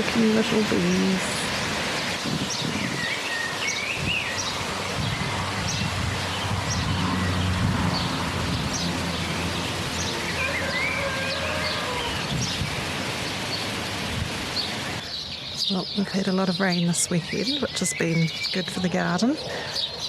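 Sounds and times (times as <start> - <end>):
light rain falling: 0.0 - 20.0
small birds chirping: 0.0 - 20.0.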